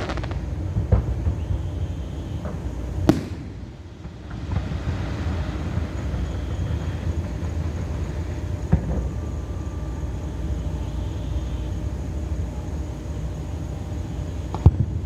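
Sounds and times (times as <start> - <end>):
faint firework pop: 2.4 - 3.8
fireworks bang: 2.4 - 9.2
low rumble: 3.1 - 6.1.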